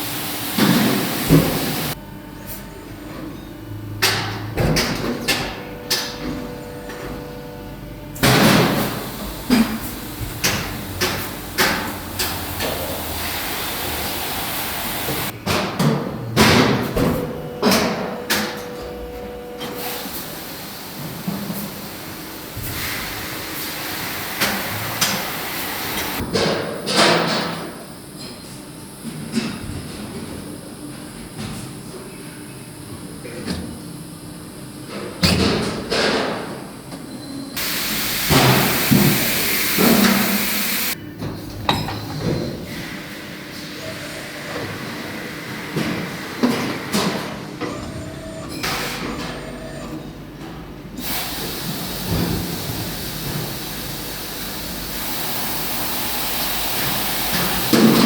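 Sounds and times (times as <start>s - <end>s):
machine hiss: 0.0s - 2.6s, 8.2s - 15.4s, 19.7s - 29.6s, 37.6s - 41.0s, 51.0s - 58.0s.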